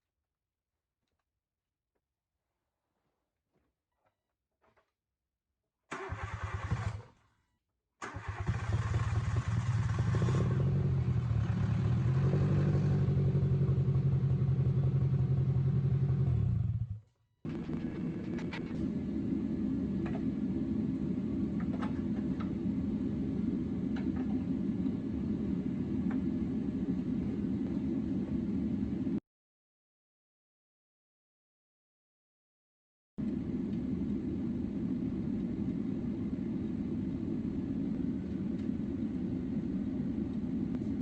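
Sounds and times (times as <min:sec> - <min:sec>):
car engine running: 0:08.8 - 0:29.1.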